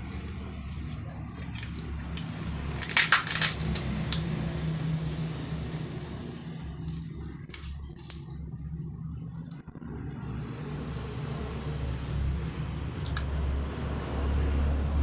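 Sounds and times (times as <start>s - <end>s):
steady low hum: 0.0s - 15.0s
eating clicks and crackles: 0.5s - 4.8s, 6.6s - 9.8s.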